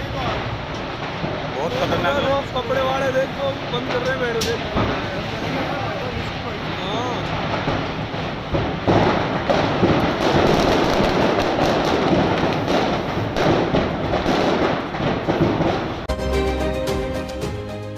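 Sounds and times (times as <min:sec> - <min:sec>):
firecrackers crackling: 0:00.0 - 0:16.1
music: 0:16.1 - 0:17.9.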